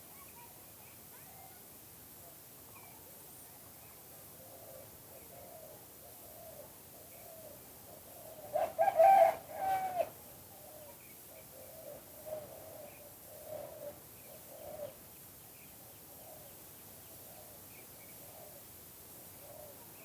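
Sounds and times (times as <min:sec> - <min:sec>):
dove cooing: 0:08.2 - 0:10.1.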